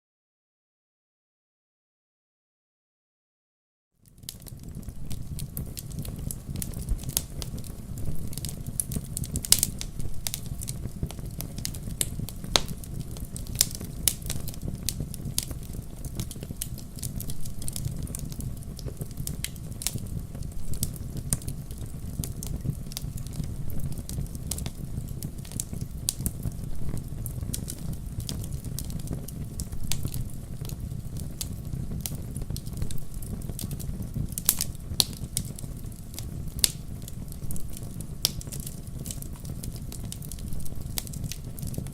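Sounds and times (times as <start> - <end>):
wood fire crackling: 4.0 - 41.9.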